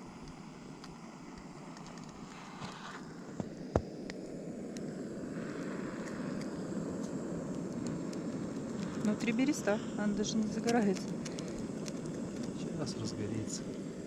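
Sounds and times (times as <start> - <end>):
campfire hissing: 0.0 - 14.0
fire crackles and pops: 0.0 - 14.0.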